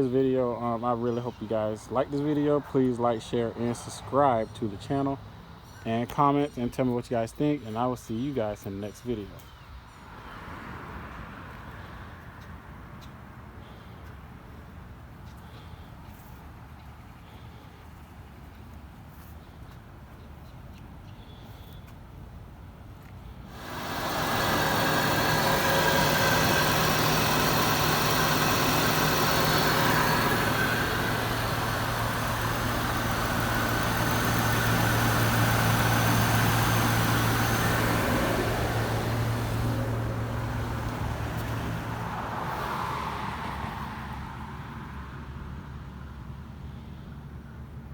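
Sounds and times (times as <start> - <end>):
vehicle engine hum: 23.5 - 47.9.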